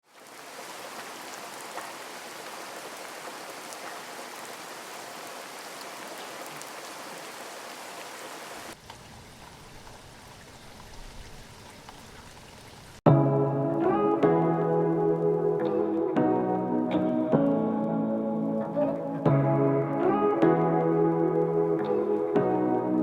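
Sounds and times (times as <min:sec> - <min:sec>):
steady rain falling: 0:00.0 - 0:23.0
raindrops ticking: 0:00.2 - 0:07.0, 0:08.7 - 0:23.0.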